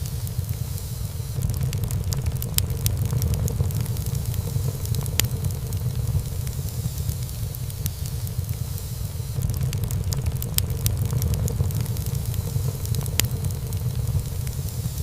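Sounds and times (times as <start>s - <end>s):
burning wood crackling and popping: 0.0s - 15.0s
flames rumbling: 0.0s - 15.0s.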